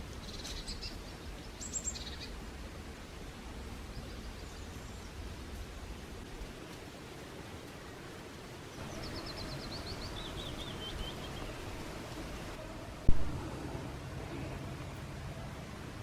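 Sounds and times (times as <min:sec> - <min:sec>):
songbird singing: 0:00.0 - 0:02.6, 0:03.7 - 0:05.7, 0:07.7 - 0:15.6
steady outdoor hiss: 0:00.0 - 0:16.0
sharp low thump: 0:13.1 - 0:13.4.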